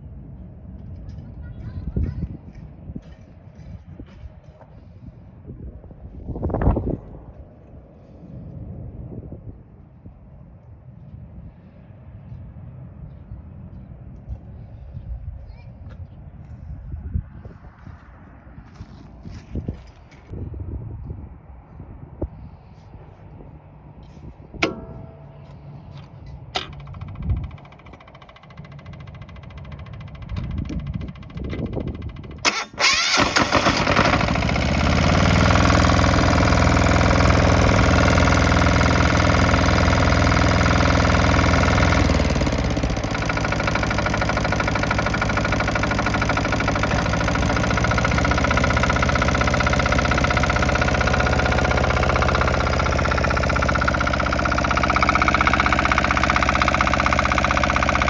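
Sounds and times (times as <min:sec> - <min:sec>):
engine starter turning over: 0:24.6 - 0:58.0
excavator engine idling: 0:24.6 - 0:58.0.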